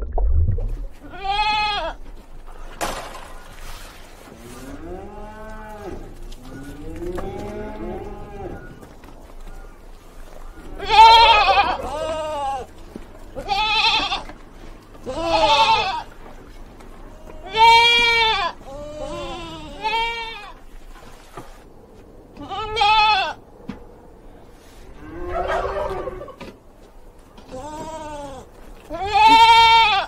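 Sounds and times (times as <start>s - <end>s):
goat bleating: 1.0s - 2.0s, 10.7s - 12.7s, 13.3s - 14.4s, 15.0s - 16.2s, 17.1s - 20.6s, 22.4s - 23.4s, 27.4s - 30.0s.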